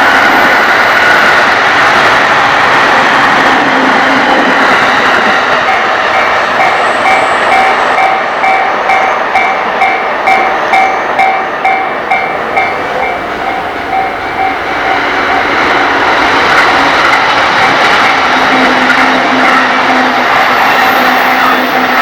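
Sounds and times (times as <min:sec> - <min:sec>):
train wheels rumbling on rail: 0:00.0 - 0:22.0
electronic crossing warning bell: 0:05.6 - 0:22.0.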